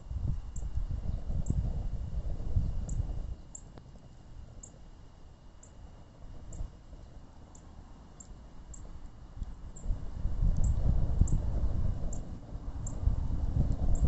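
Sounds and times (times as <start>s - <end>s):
campfire rumble: 0.0s - 14.0s
small high ticks: 0.3s - 0.8s, 2.8s - 4.9s, 5.6s - 11.4s, 12.1s - 13.1s.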